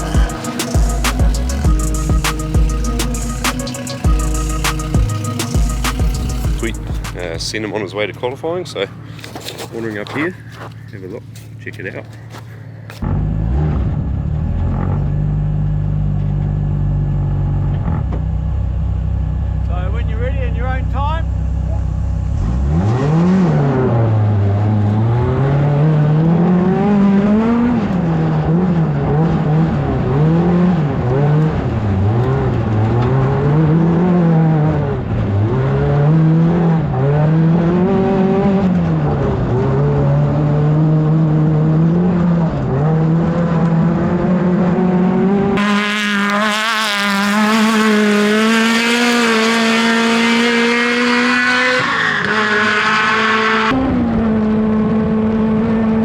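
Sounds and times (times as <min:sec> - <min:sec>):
race car engine revving: 0:00.0 - 0:09.0, 0:21.6 - 0:56.0.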